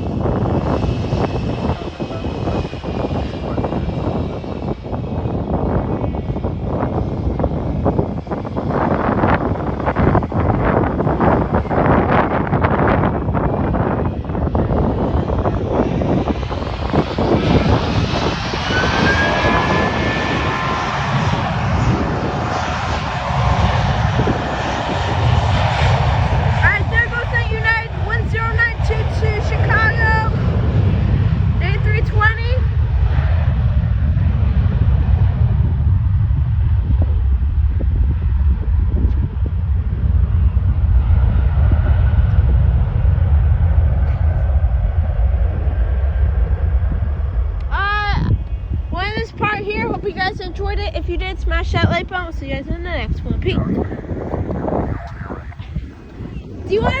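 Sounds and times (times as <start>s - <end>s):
jet engines roaring at takeoff: 0.0s - 57.0s.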